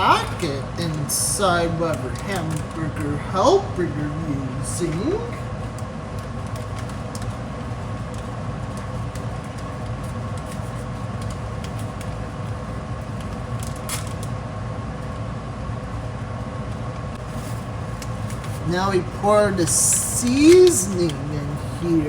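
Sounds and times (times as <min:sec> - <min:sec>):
packet crinkling: 0:00.0 - 0:03.2, 0:04.9 - 0:14.3, 0:17.2 - 0:22.0
kitchen appliance humming: 0:00.0 - 0:22.0.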